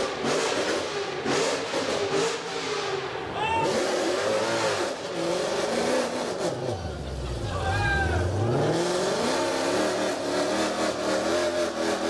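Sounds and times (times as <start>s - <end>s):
car engine revving: 3.7s - 12.0s.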